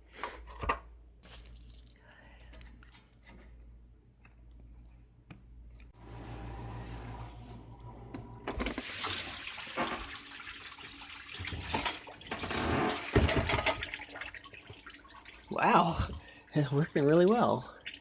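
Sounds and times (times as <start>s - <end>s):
dishwasher spraying water: 6.4s - 14.2s.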